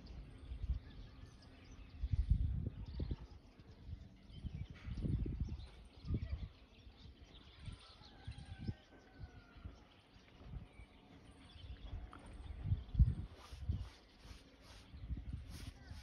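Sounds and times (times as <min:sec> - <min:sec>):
faint bird chirps: 0:00.0 - 0:16.0
low rumbling microphone bumps: 0:11.8 - 0:16.0.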